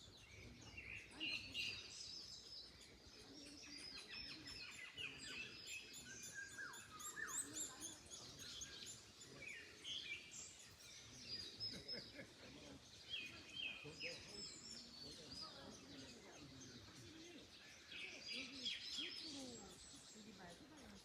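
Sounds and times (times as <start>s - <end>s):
birds chirping and singing: 0.0s - 21.0s.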